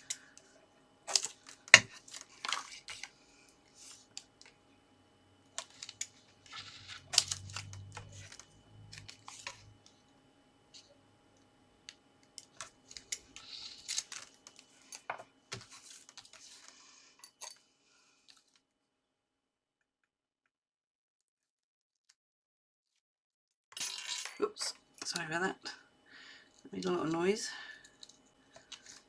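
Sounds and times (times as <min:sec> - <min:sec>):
card and paper rustling: 0:05.6 - 0:09.7, 0:12.5 - 0:16.8.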